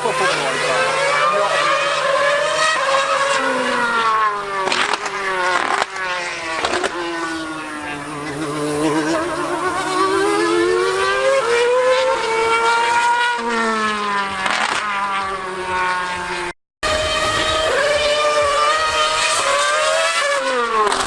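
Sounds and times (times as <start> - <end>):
racing engine revving: 0.0 - 21.0.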